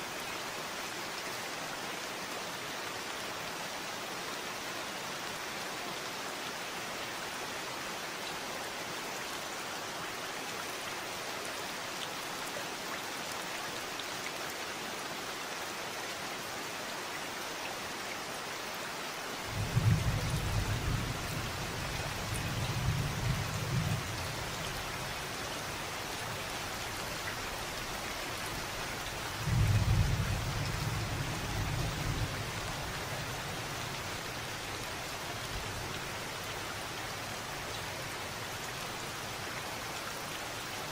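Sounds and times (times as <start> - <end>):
steady rain: 0.0 - 40.9
low thunder rolls: 29.5 - 32.4.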